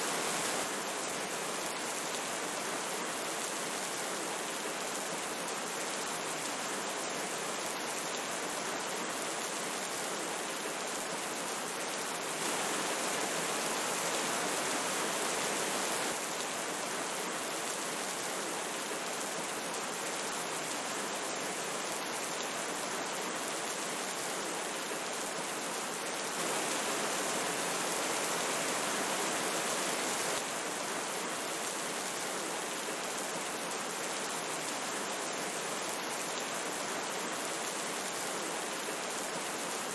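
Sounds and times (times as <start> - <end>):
rain hissing: 0.0 - 0.7, 12.4 - 16.3, 26.4 - 30.5
river water rushing: 12.4 - 16.6.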